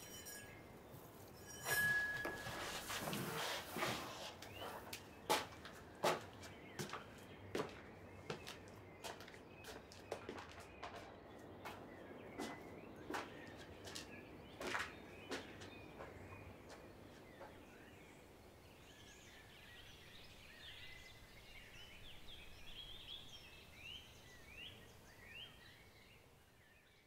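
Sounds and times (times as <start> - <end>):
faint birds chirping: 0.0 - 27.0.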